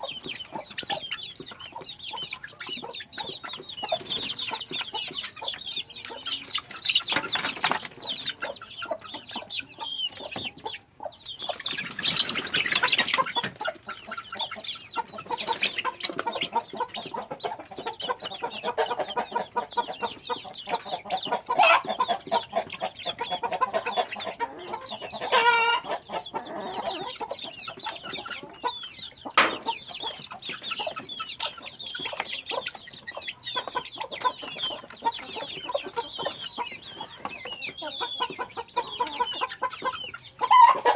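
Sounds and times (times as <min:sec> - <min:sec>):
chickens clucking: 0:00.0 - 0:40.9
chicken squawk: 0:11.8 - 0:30.2, 0:33.2 - 0:40.9.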